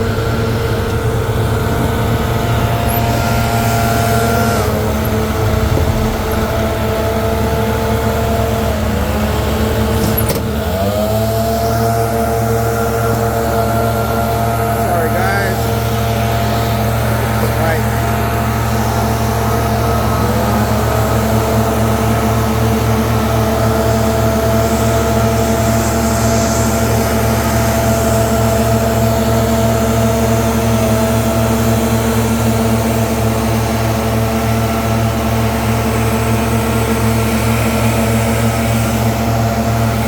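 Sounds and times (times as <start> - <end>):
leaf blower running: 0.0 - 40.0.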